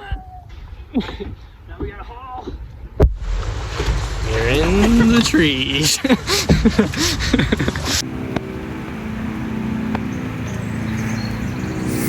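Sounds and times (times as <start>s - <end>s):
person speaking: 4.2s - 6.3s
motor drone: 6.4s - 12.0s.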